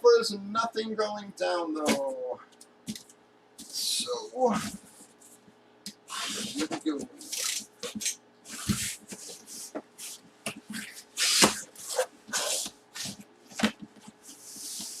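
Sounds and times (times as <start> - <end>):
cardboard rustling and tearing: 6.1 - 15.0.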